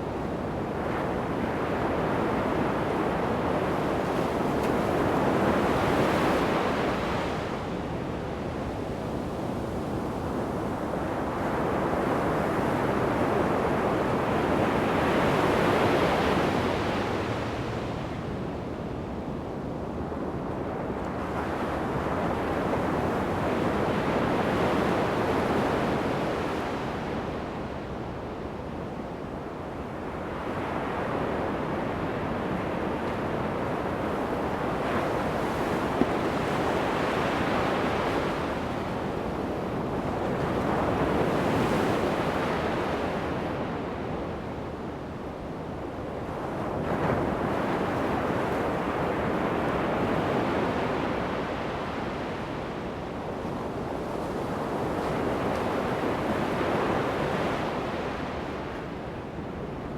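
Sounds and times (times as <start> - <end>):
ocean waves breaking on beach: 29.7 - 59.9.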